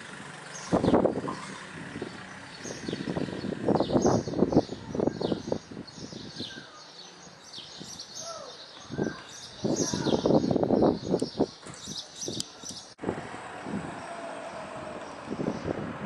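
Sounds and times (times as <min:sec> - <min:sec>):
wind: 0:00.0 - 0:16.0
small birds chirping: 0:00.3 - 0:13.0
rapid buffeting noise: 0:13.0 - 0:16.0.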